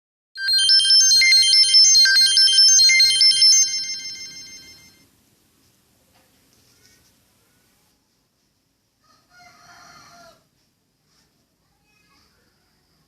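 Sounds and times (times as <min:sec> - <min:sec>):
electronic beeping melody: 0:00.4 - 0:05.0.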